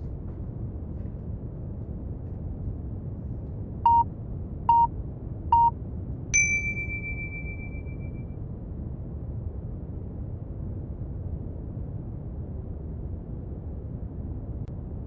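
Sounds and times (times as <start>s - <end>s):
long higher tone: 6.4s - 8.2s
short beeps: 6.4s - 8.2s
steady brown noise: 6.4s - 8.2s.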